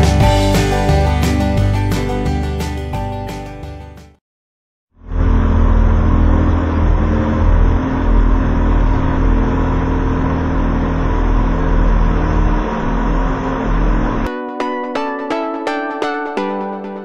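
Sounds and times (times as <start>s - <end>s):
engine running steadily: 5.0s - 14.3s.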